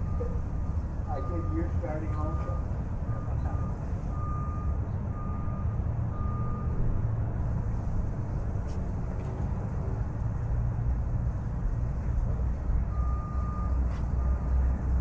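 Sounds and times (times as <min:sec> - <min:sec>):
reversing alarm beeping: 0:00.0 - 0:06.9, 0:12.9 - 0:14.6.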